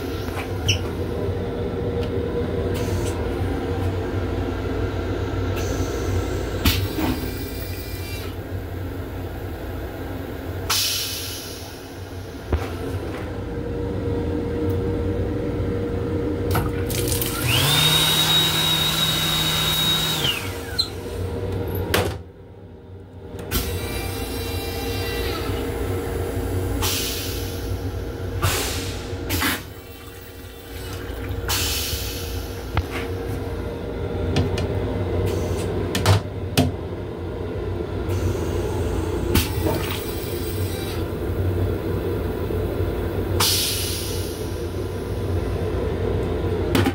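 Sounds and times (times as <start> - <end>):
railcar rumble and hum: 0.0 - 46.9
motor whine: 17.0 - 21.3.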